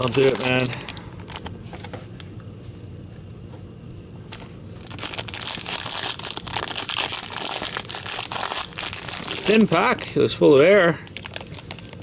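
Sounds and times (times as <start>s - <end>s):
foil wrapper tearing and crinkling: 0.0s - 1.5s, 4.8s - 9.8s, 11.0s - 12.0s.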